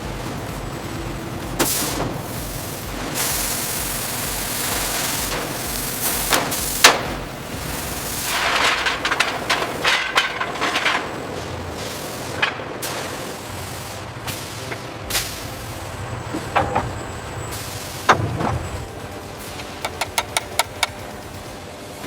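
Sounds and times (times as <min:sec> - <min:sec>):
steady hiss: 0:00.0 - 0:22.0
clatter of metal clicks: 0:19.5 - 0:21.6
sharp knocks: 0:19.6 - 0:21.2.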